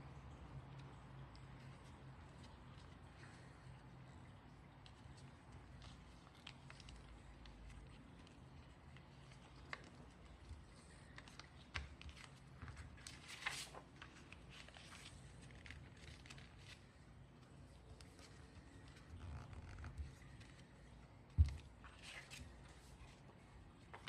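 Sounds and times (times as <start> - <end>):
paper rustling and folding: 0.6 - 24.0.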